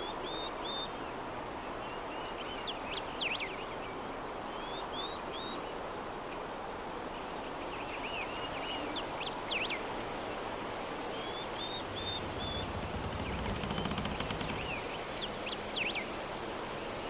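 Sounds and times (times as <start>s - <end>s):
soft breeze: 5.9s - 17.0s
birds chirping and whistling: 11.2s - 16.0s.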